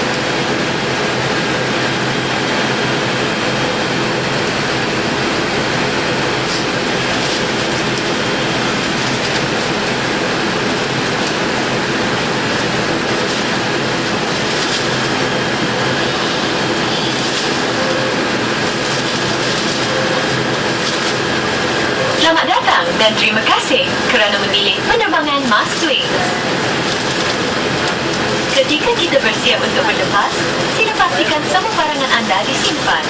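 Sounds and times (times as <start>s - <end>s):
airliner cabin engine drone: 0.0s - 33.0s
faint steady whines: 0.0s - 33.0s.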